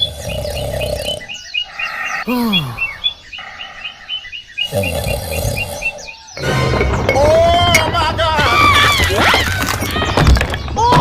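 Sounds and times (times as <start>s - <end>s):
frogs croaking: 0.0s - 6.7s
birds chirping: 0.0s - 11.0s.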